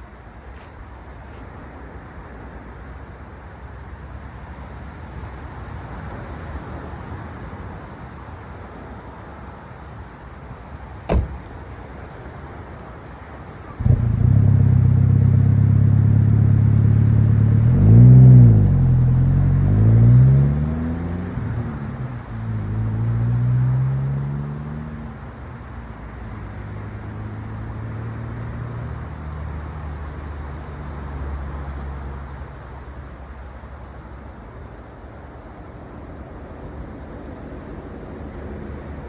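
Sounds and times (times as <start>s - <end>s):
car engine idling and revving: 12.5s - 32.4s.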